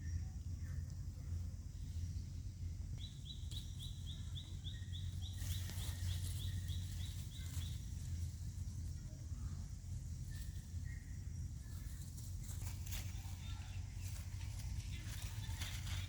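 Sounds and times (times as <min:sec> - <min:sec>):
low outdoor rumble: 0:00.0 - 0:16.0
bird chirping rapidly: 0:03.0 - 0:08.2.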